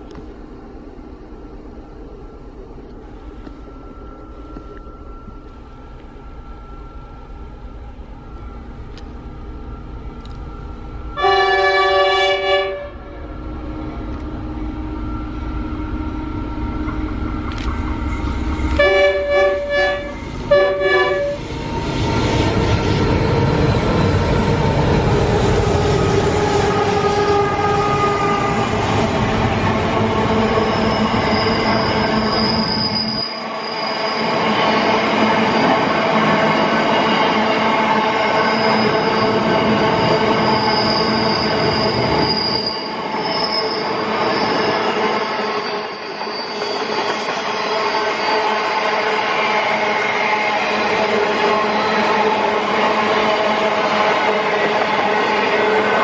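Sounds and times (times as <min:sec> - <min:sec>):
locomotive engines and wheels rumbling: 0:00.0 - 0:56.0
train chime horn blasts: 0:11.1 - 0:13.4, 0:18.7 - 0:21.4, 0:26.3 - 0:29.3, 0:47.4 - 0:56.0
thin wheel squeal: 0:30.4 - 0:34.9, 0:38.4 - 0:52.8.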